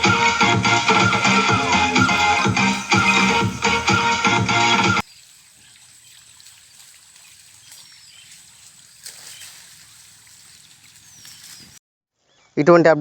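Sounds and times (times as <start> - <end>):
music: 0.0 - 5.0
trickling water hiss: 0.0 - 11.8
faint bird chirp: 2.0 - 4.1, 5.0 - 12.6.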